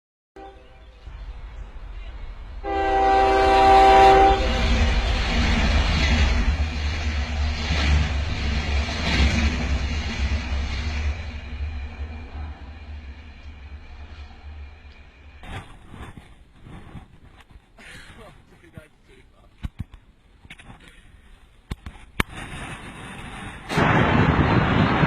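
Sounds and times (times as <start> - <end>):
train horn blowing: 0.4 - 1.0, 2.6 - 4.9
train passing with rushing rumble: 0.4 - 17.5.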